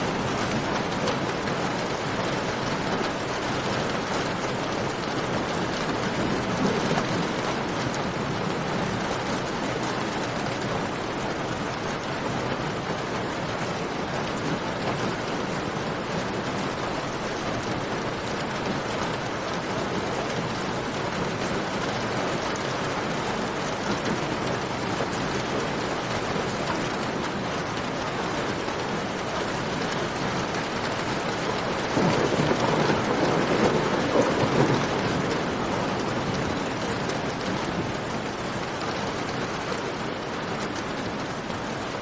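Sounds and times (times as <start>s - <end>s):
steady rain: 0.0s - 42.0s.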